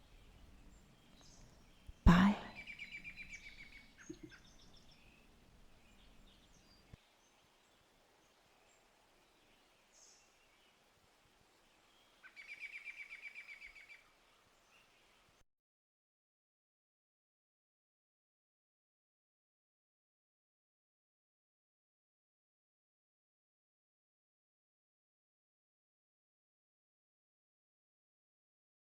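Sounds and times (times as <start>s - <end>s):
faint forest background: 0.0s - 15.4s.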